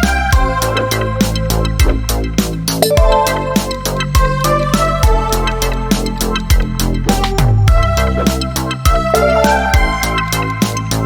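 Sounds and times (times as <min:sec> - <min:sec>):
steady drum beat: 0:01.7 - 0:05.3, 0:06.0 - 0:10.1
keyboard melody: 0:02.8 - 0:04.7, 0:09.1 - 0:10.2.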